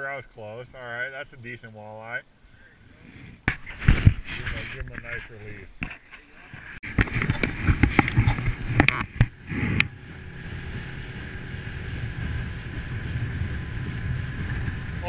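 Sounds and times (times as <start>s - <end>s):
wind buffeting microphone: 6.6s - 15.0s
boat motor running: 6.8s - 15.0s.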